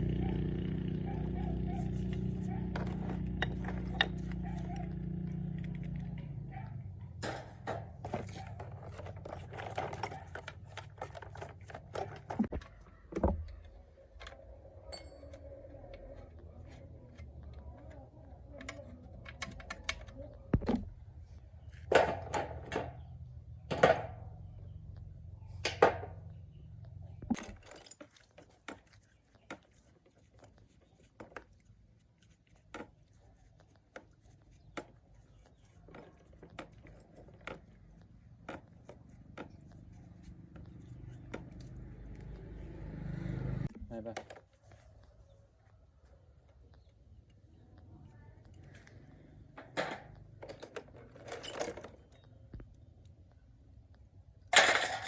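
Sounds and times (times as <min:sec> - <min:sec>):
metal tools clinking: 0:07.2 - 0:12.4, 0:14.9 - 0:15.7, 0:54.5 - 0:55.0.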